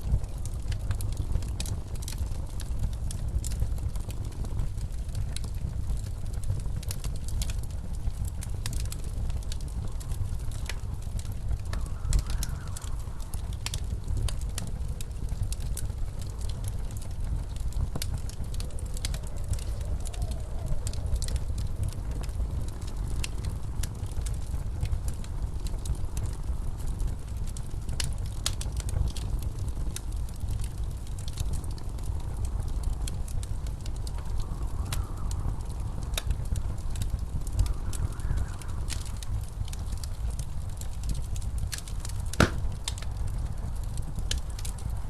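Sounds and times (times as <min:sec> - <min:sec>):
blizzard wind howling: 0:00.0 - 0:45.0
wood fire crackling: 0:00.0 - 0:45.0.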